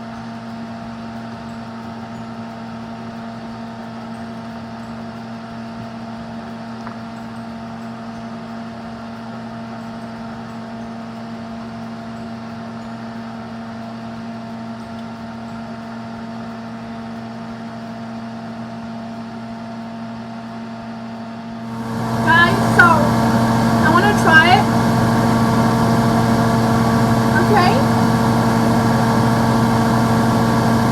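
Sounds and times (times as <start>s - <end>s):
exhaust fan humming: 21.4s - 30.9s.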